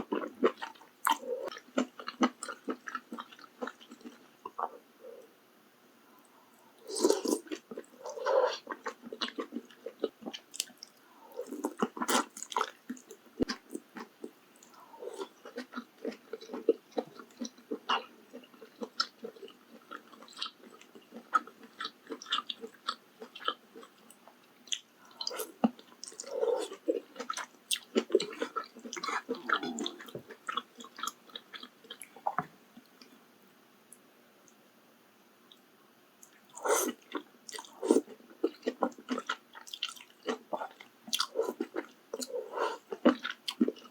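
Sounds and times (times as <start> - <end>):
close-miked wet chewing: 6.9 - 32.4, 36.2 - 43.9.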